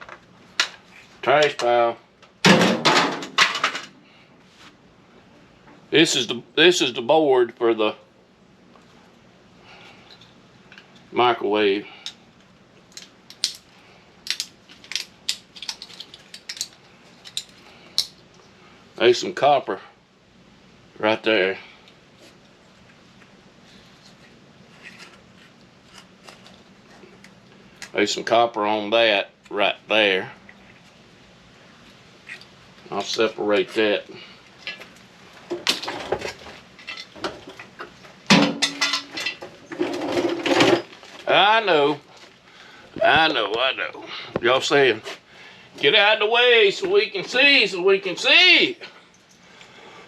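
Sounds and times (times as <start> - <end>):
metal parts clinking and knocking: 14.3 - 18.1.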